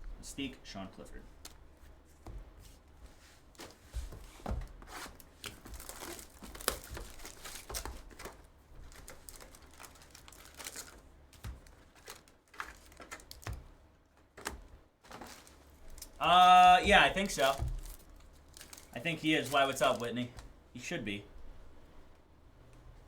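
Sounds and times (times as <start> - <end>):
wrappers tearing and crinkling: 4.9 - 13.6, 15.0 - 20.2.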